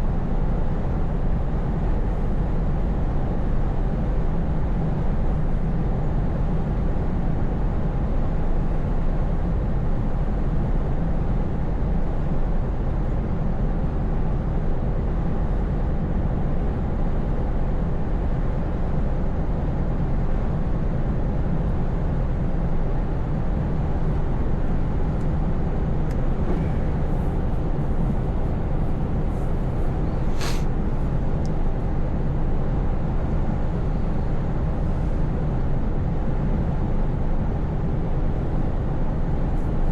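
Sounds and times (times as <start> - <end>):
road noise: 29.5 - 30.8
sharp high hiss or click: 30.3 - 30.7.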